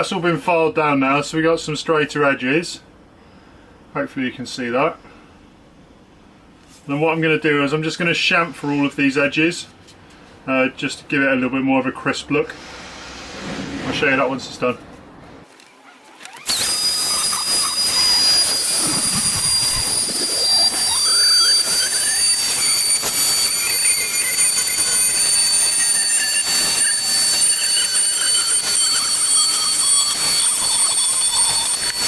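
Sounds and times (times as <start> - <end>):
trim router whining: 15.5 - 32.0.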